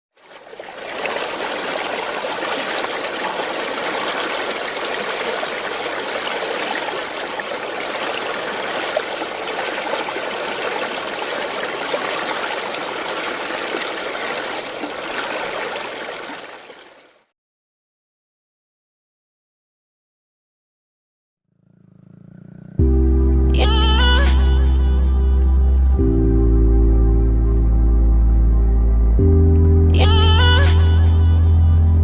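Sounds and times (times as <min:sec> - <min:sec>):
flowing water rushing: 0:00.1 - 0:17.3.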